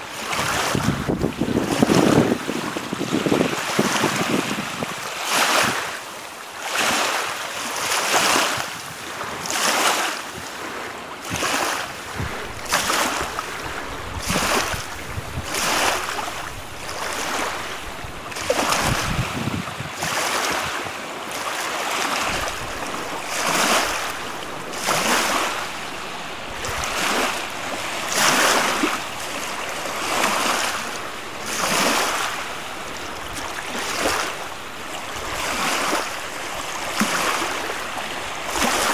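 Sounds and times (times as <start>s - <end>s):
wind blowing: 0.0s - 4.9s, 11.9s - 20.7s, 22.0s - 38.9s
lake waves splashing: 0.0s - 38.9s.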